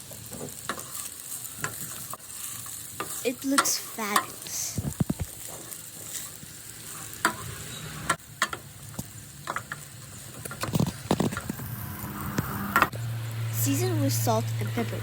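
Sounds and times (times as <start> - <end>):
rice sizzling in a pan: 0.0 - 15.0
utensil scraping against pan: 0.3 - 8.2.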